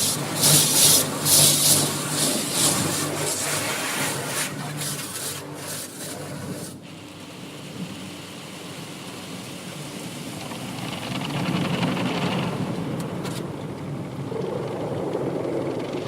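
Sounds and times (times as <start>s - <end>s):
car wash brushes scrubbing: 0.0s - 6.8s.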